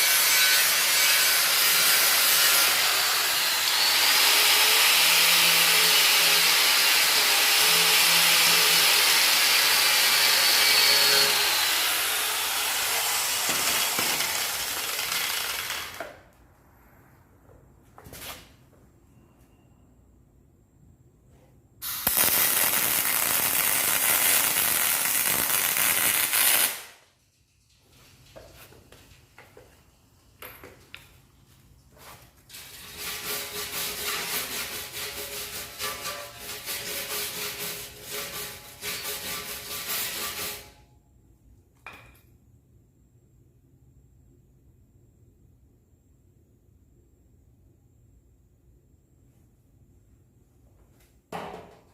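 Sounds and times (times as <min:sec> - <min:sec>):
welding arc crackling: 0:12.7 - 0:16.0, 0:21.8 - 0:27.0
scrubbing strokes on metal: 0:32.0 - 0:40.7.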